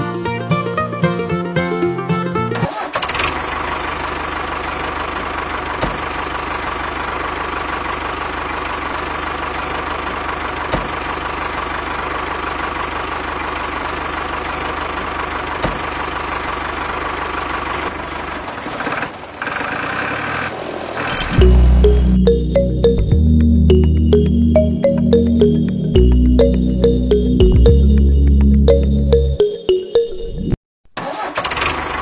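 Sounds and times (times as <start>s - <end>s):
small tractor engine running: 2.6s - 20.5s.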